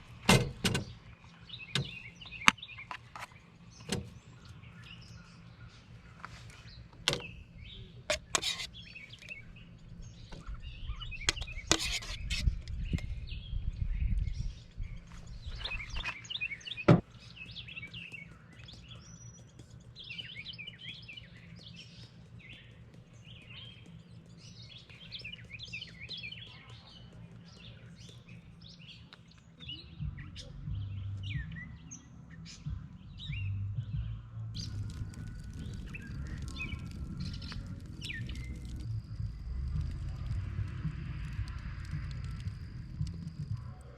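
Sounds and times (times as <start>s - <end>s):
wild birds chirping: 0.0s - 43.9s
low rumble: 29.9s - 43.9s.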